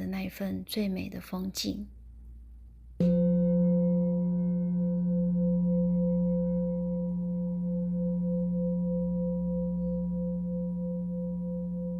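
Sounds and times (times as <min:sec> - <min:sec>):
singing bowl ringing: 0:03.0 - 0:11.9.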